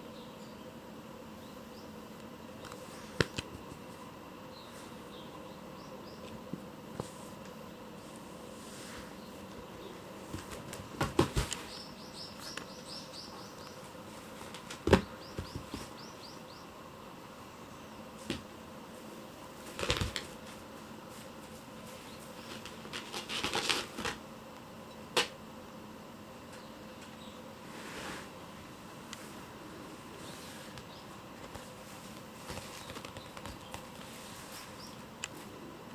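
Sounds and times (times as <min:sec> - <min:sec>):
kittens thumping and scrabbling: 0:10.3 - 0:11.8, 0:14.4 - 0:16.0.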